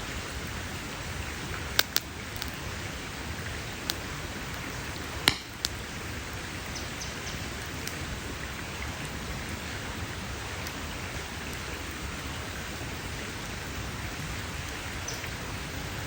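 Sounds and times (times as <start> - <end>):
campfire crackling hiss: 0.0 - 16.0
sharp pops of wood: 5.3 - 5.8.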